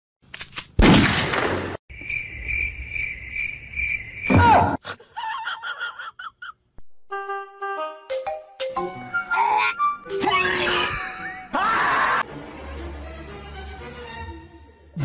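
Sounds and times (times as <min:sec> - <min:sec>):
high pulsing chirping: 0:01.9 - 0:04.3.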